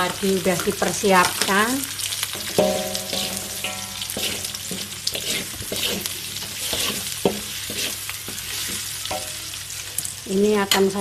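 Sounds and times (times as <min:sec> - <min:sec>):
paste sizzling in hot oil: 0:00.0 - 0:11.0
wooden spatula scraping a wok: 0:02.2 - 0:10.1.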